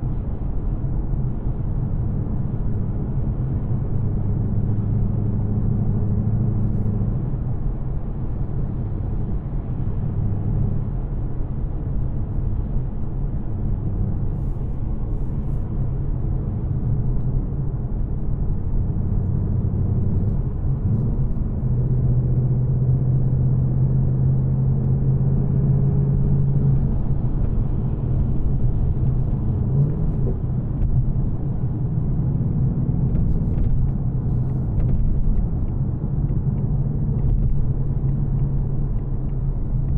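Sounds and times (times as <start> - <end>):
car engine cruising: 0.0 - 39.9.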